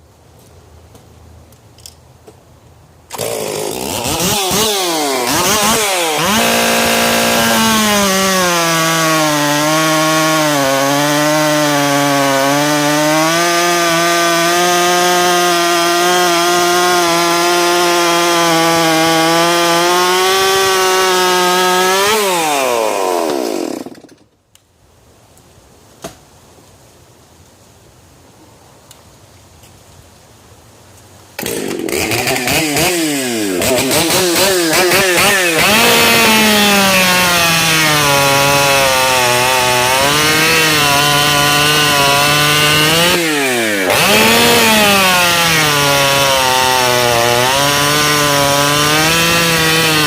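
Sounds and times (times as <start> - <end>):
chainsaw cutting log: 3.1 - 24.3, 31.4 - 50.0.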